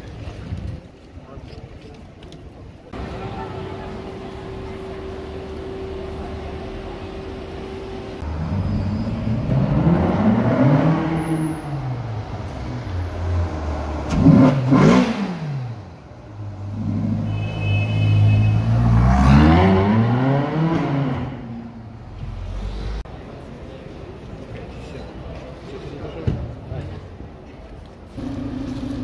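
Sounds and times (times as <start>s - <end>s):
car engine accelerating: 3.8s - 12.3s, 18.7s - 23.0s.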